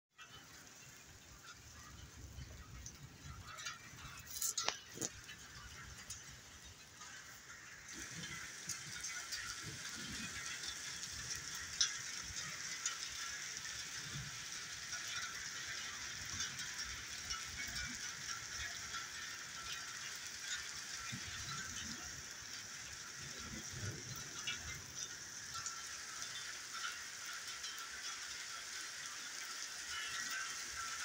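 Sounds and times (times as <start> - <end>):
heavy rain falling: 0.2 - 31.0.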